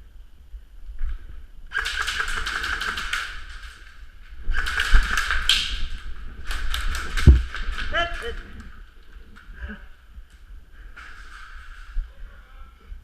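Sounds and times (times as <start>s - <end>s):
airsoft gun firing full-auto bursts: 1.7s - 3.7s, 4.5s - 7.2s.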